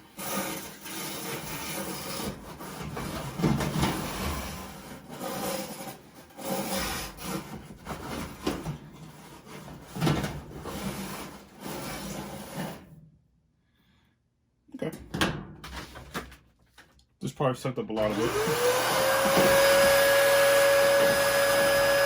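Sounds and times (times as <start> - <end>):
attachment scraping and rubbing: 0.2 - 12.8
vacuum cleaner running: 18.0 - 22.0.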